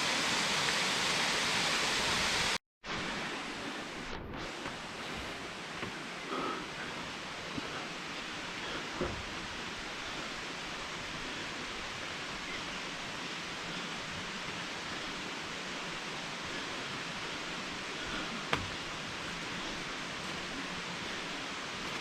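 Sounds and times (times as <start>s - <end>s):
waterfall rushing: 0.0s - 4.0s, 4.6s - 22.0s.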